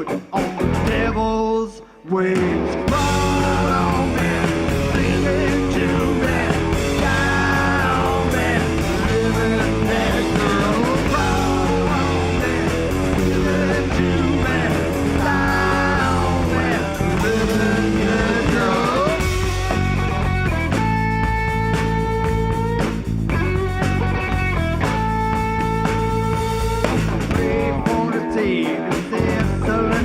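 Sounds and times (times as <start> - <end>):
electric guitar: 0.0 - 30.0
rock band playing live: 0.0 - 30.0.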